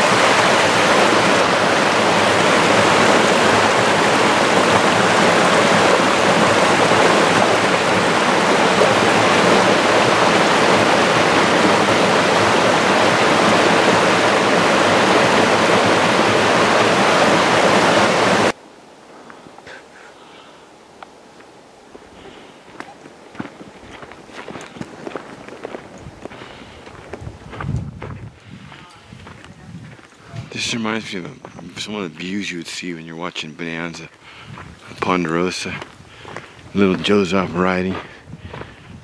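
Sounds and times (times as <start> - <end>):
creek water rushing over rocks: 0.0 - 19.6.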